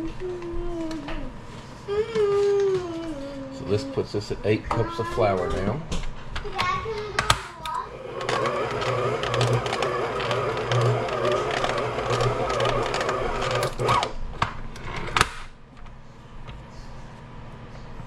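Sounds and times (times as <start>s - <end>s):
stand mixer kneading dough: 7.6s - 14.2s.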